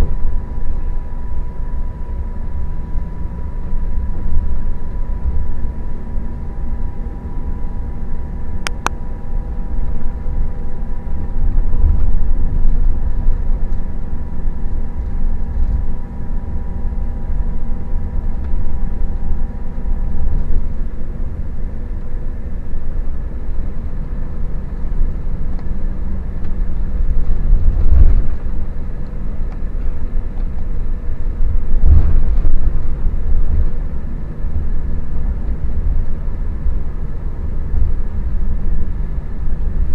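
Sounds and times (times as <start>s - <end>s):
coach engine and road rumble: 0.0s - 39.9s
faint steady whine: 0.0s - 39.9s.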